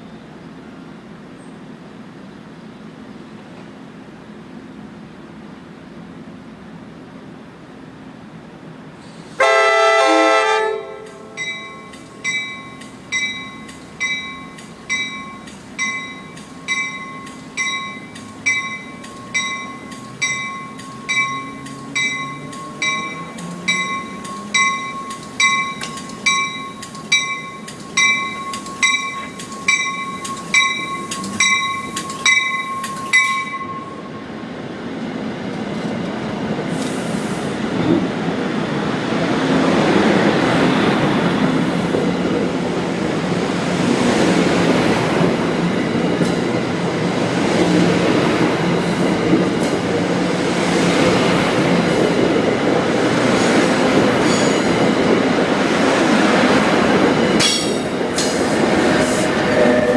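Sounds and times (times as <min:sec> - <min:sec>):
train horn blast: 0:09.4 - 0:11.4, 0:59.3 - 0:59.9
warning bell ringing: 0:11.4 - 0:34.2
passenger cars rumbling past: 0:17.9 - 0:26.5.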